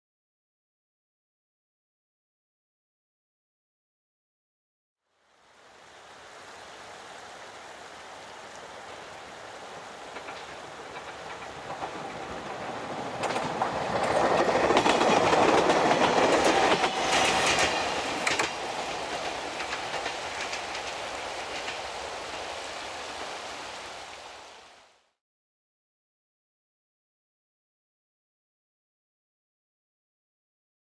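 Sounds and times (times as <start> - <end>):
diesel railcar passing: 6.0 - 24.4
wheels clacking over rail joints: 8.7 - 23.5.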